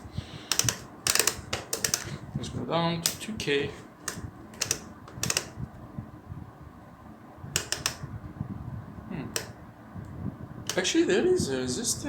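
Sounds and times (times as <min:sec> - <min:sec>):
plastic rotary switch clicks: 0:04.0 - 0:05.6, 0:07.6 - 0:08.0, 0:09.4 - 0:09.6
light handling noise: 0:10.6 - 0:11.0.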